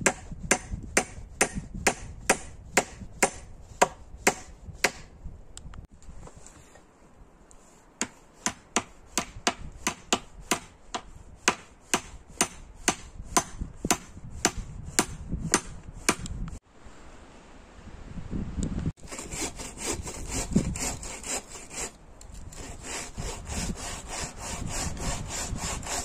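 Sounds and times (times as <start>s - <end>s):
hand tool striking wood: 0.0s - 5.1s, 8.0s - 16.3s.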